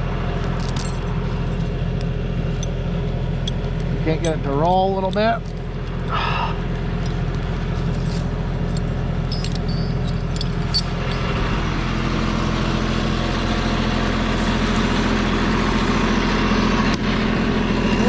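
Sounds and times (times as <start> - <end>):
tractor engine running: 0.0 - 18.0
light clinks: 3.4 - 11.4.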